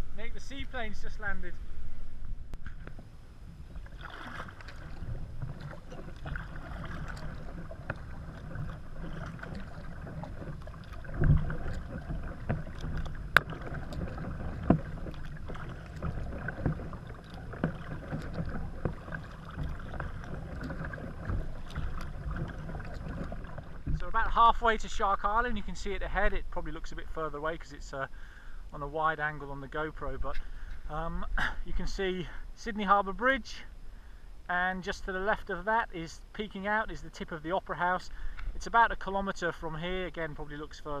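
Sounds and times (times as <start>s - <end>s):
steady low rumble: 0.0s - 32.0s
paddle splashing in water: 2.6s - 25.4s
sharp splashes or knocks: 3.8s - 24.2s.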